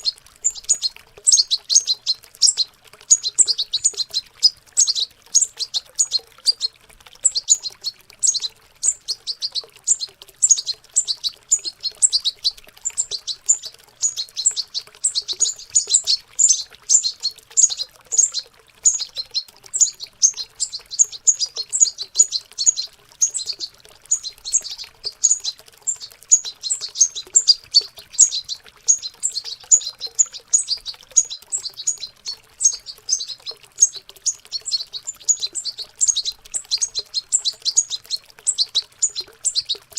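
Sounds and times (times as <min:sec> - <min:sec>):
faint running water: 0:00.0 - 0:39.9
young finches twittering: 0:00.0 - 0:39.9.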